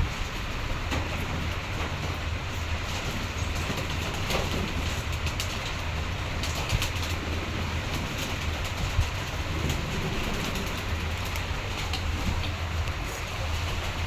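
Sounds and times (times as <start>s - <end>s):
pigeons cooing in a flock: 3.3s - 14.0s.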